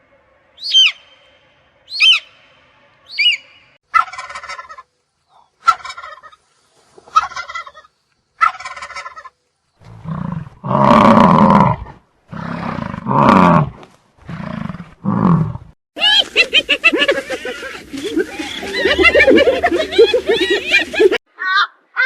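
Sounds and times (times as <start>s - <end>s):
gobbling calls: 3.2s - 4.8s, 5.6s - 6.4s, 7.1s - 9.3s.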